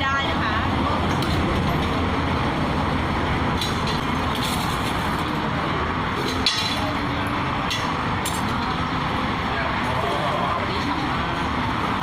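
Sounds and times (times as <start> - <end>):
roadside traffic noise: 0.0 - 12.0.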